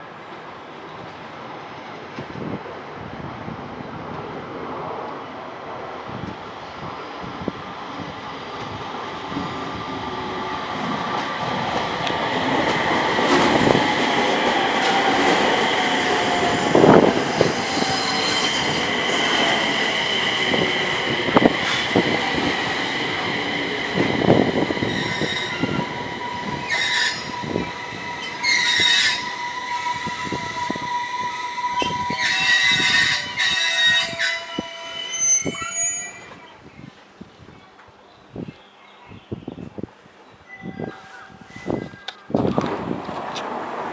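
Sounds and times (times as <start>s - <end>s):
electric train approaching: 5.6s - 36.4s, 42.5s - 43.9s
high brake squeals: 16.6s - 36.5s, 40.4s - 42.1s.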